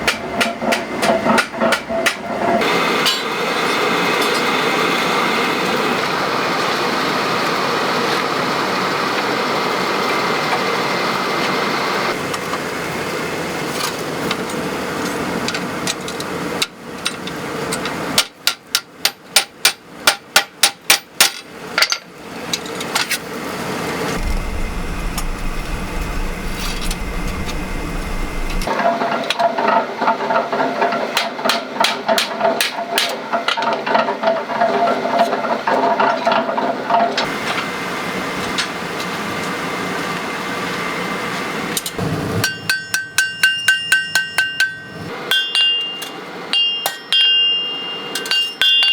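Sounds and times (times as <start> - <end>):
workshop noise: 0.0 - 8.2, 24.0 - 29.1, 41.3 - 48.9
brief low hum: 24.1 - 28.7
hammer striking steel: 42.3 - 48.9.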